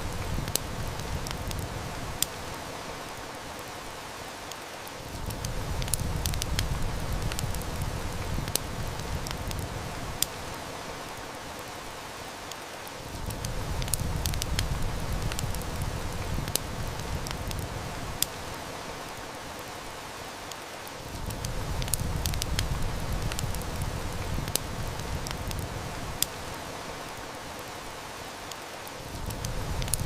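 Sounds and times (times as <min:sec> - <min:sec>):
rain hiss: 0:00.0 - 0:30.0
wood fire crackling: 0:00.0 - 0:30.0.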